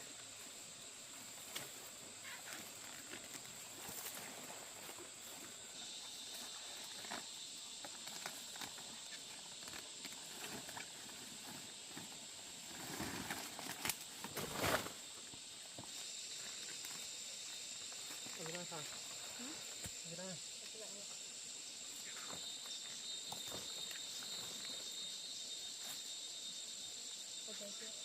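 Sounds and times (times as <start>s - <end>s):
high-pitched insect drone: 0.0s - 28.0s
rustling and scraping: 7.9s - 15.1s.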